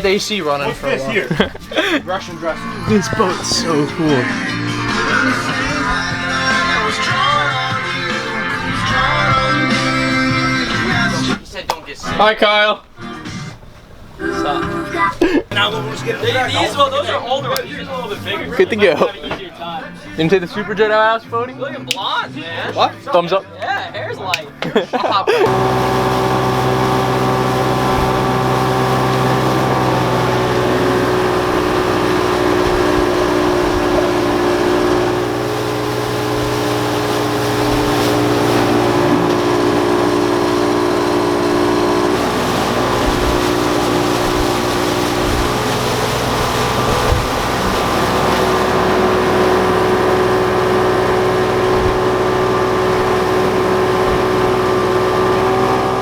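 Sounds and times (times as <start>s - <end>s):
boat engine running: 0.0s - 12.3s, 25.4s - 56.0s
water noise: 0.0s - 18.7s, 25.4s - 56.0s.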